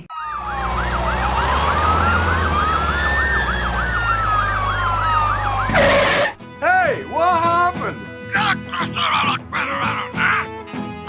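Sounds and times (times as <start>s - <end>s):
low engine rumble: 0.0s - 6.4s
siren wail: 0.0s - 6.4s
siren yelp: 0.0s - 6.4s.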